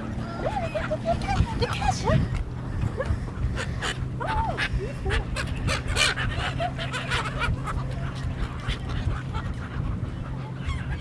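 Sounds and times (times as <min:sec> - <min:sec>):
gulls squawking: 0:00.0 - 0:11.0
steady low hum: 0:00.0 - 0:11.0.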